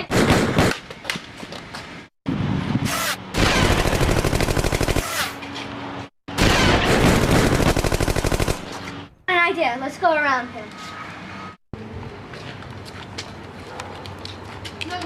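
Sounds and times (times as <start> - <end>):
rapid automatic gunfire: 0.1 - 0.7, 3.4 - 5.2, 6.4 - 8.7.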